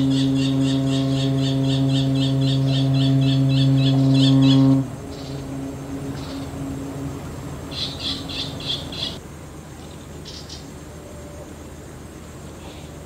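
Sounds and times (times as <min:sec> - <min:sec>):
bird chirping: 0:00.0 - 0:09.2, 0:09.8 - 0:11.5
ship whistle low tone: 0:00.0 - 0:09.2.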